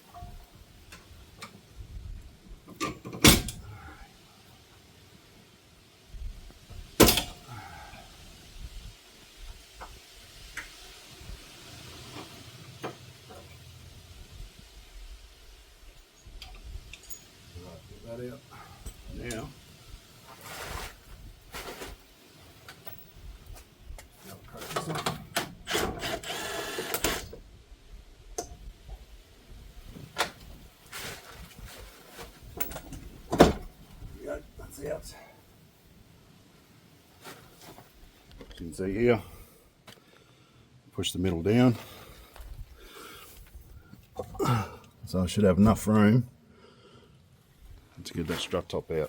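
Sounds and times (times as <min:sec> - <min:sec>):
tool scraping rasp: 0:25.7 - 0:27.2.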